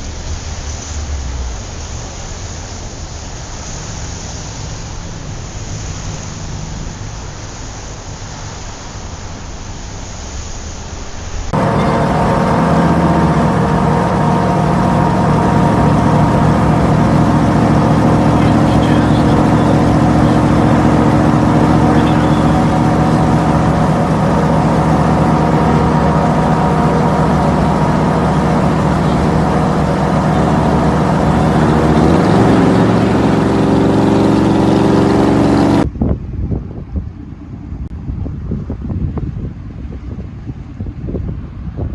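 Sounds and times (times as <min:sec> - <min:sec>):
truck engine with loud exhaust: 0:11.6 - 0:35.9.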